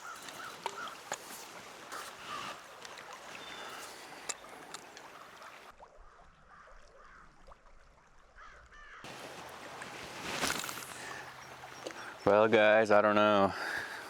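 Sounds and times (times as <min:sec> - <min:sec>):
bird calls: 0:00.0 - 0:02.6, 0:03.2 - 0:05.6, 0:10.2 - 0:12.5.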